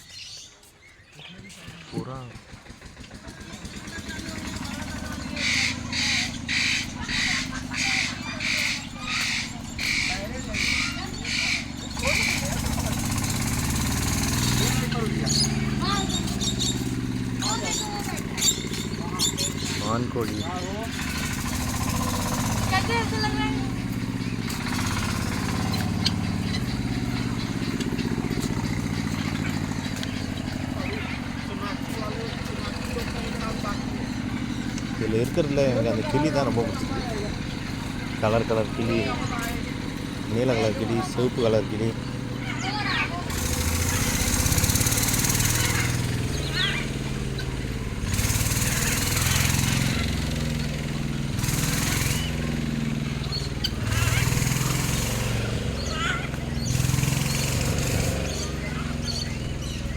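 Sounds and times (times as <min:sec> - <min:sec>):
engine idling: 0:01.2 - 0:59.9.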